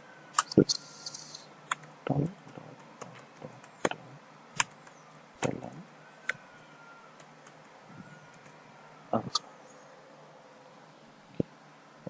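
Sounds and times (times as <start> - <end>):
keyboard and mouse clicks: 0.4 - 4.0, 4.6 - 6.4.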